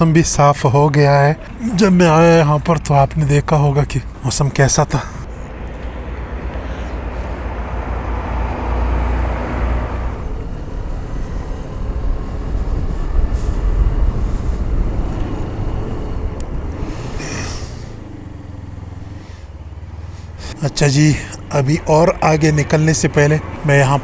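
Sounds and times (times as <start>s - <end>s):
motorcycle running: 0.0s - 24.0s
wind rumbling on microphone: 5.2s - 18.0s.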